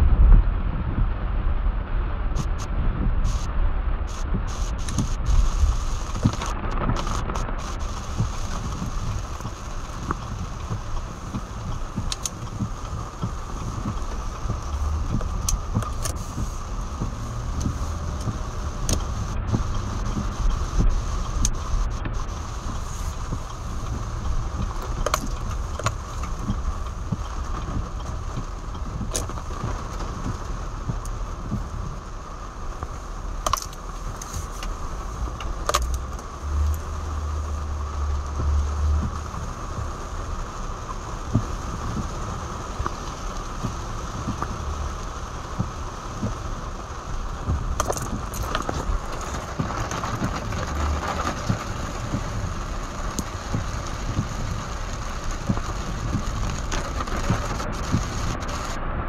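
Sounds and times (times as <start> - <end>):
heavy rain on car roof: 0.0 - 59.0
low rumble: 0.0 - 59.0.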